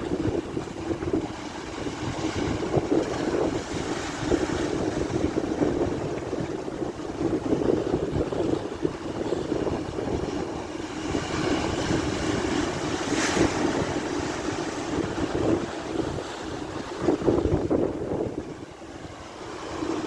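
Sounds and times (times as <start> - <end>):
rough sea surf: 0.0 - 20.0
wind buffeting microphone: 0.0 - 20.0.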